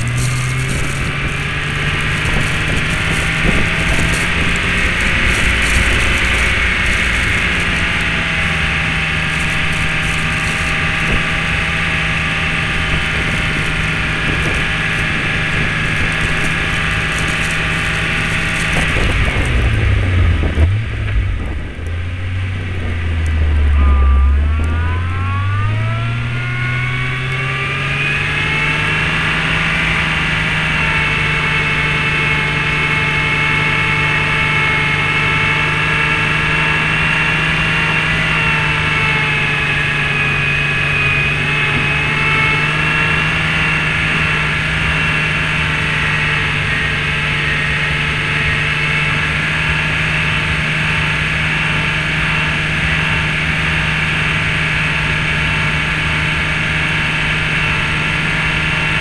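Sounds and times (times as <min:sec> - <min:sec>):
car engine running: 0:00.0 - 0:59.0
plow scraping snow: 0:00.0 - 0:59.0.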